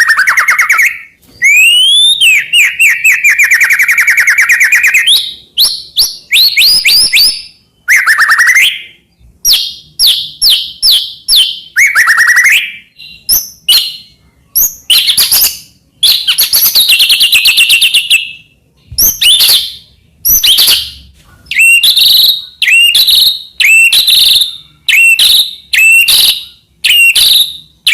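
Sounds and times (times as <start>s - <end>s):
bird singing varied phrases: 0.0s - 27.9s.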